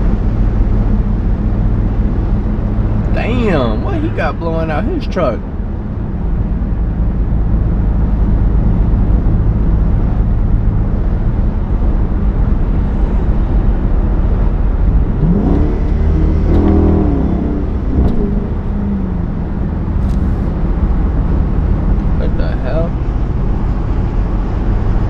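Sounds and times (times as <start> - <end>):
car exhaust droning: 0.0 - 25.0.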